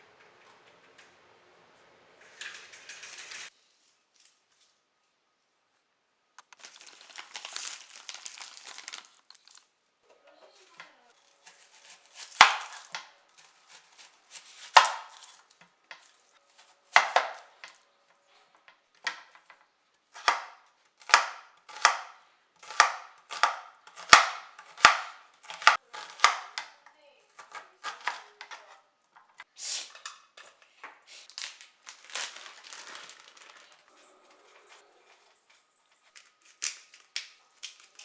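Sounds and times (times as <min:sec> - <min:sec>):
packaging crinkling: 0:06.4 - 0:09.7, 0:31.2 - 0:38.0
knife chopping on cutting board: 0:11.4 - 0:15.4, 0:16.6 - 0:17.6, 0:20.2 - 0:26.7, 0:27.4 - 0:28.6.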